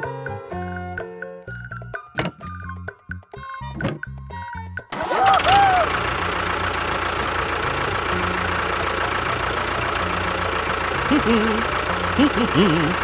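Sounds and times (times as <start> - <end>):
small motor running: 5.0 - 13.0.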